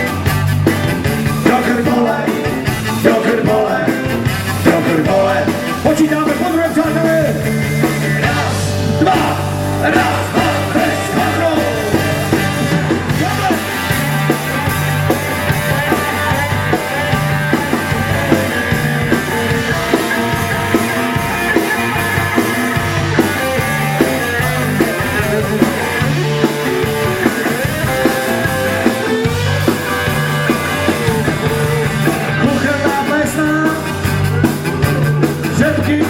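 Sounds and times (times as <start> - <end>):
rock band playing: 0.0 - 36.0.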